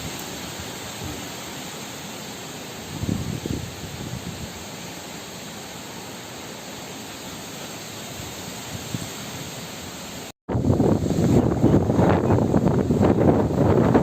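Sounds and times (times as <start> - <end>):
wind and rain hiss: 0.0 - 14.0
wind buffeting microphone: 2.9 - 4.6, 10.5 - 14.0.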